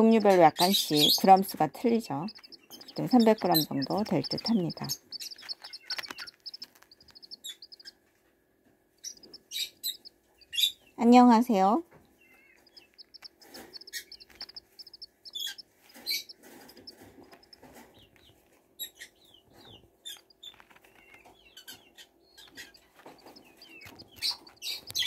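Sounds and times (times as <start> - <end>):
chicks peeping: 0.0 - 8.0, 9.0 - 25.0
sharp taps and scratches: 2.2 - 7.9, 9.0 - 10.1, 12.6 - 18.6, 19.5 - 25.0.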